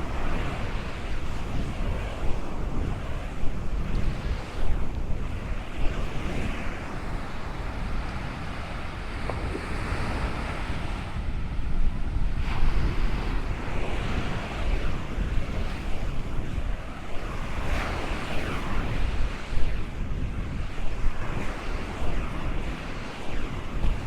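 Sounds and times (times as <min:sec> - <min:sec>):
ocean surf washing ashore: 0:00.0 - 0:23.1
wind buffeting microphone: 0:00.0 - 0:24.0.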